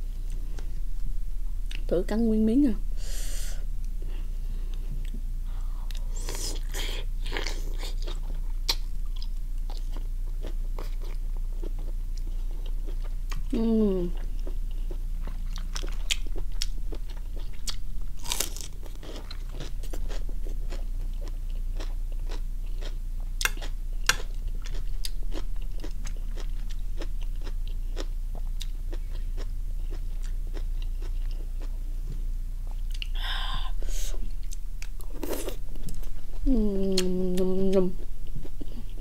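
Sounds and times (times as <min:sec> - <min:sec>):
wet chewing and crunching: 0:14.4 - 0:31.7.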